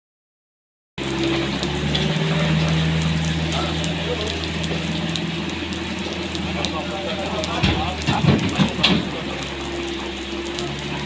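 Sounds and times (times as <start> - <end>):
excavator engine running: 1.0 - 11.0.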